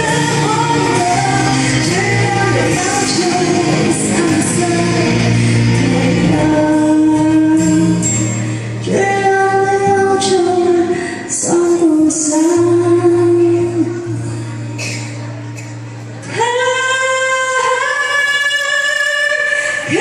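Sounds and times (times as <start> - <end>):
woman singing sustained notes: 0.0 - 14.5
band playing: 0.0 - 17.8.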